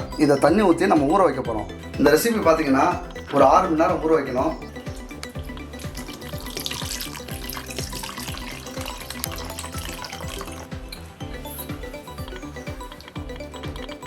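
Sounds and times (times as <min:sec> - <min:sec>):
background music: 0:00.0 - 0:14.0
water pouring: 0:05.5 - 0:14.0.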